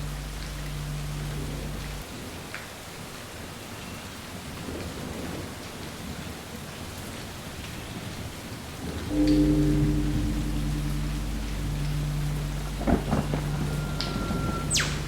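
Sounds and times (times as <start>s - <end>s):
loud deep rumble: 0.0s - 2.0s, 8.8s - 15.0s
steady rain falling: 0.0s - 15.0s.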